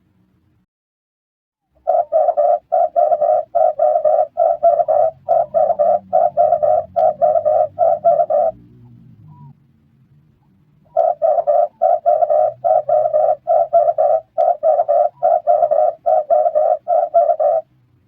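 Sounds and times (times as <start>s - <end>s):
dove cooing: 1.8s - 9.6s, 10.9s - 17.7s.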